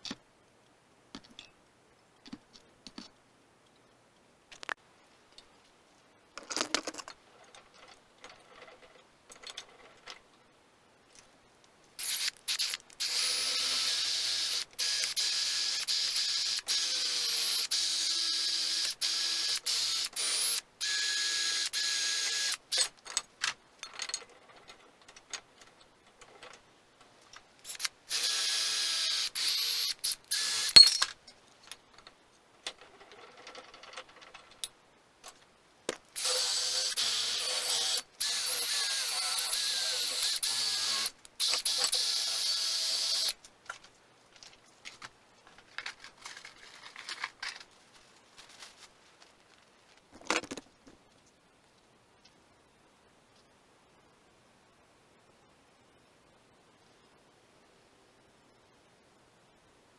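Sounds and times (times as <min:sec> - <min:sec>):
handheld power tool running: 0:12.0 - 0:22.6, 0:27.7 - 0:31.0, 0:36.2 - 0:43.3
tool clatter: 0:30.7 - 0:31.2.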